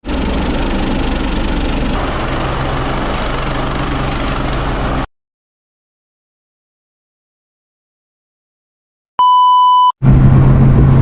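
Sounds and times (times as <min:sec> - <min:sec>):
deep machinery drone: 0:00.0 - 0:05.1, 0:10.0 - 0:11.0.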